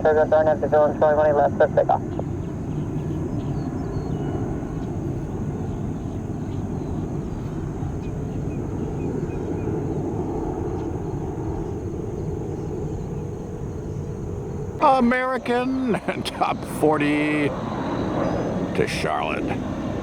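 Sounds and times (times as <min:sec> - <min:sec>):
jet engines rumbling: 0:00.0 - 0:20.0.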